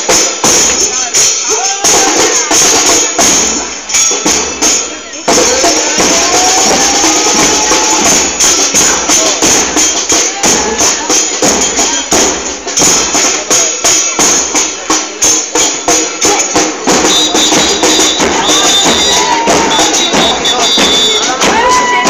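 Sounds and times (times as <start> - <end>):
voices: 0.3 - 22.0
bass drums beaten fast: 5.3 - 22.0.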